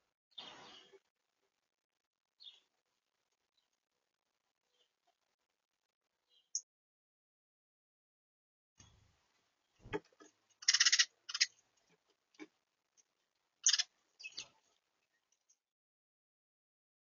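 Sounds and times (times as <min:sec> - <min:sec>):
birds pecking and scrabbling: 0:08.8 - 0:15.7.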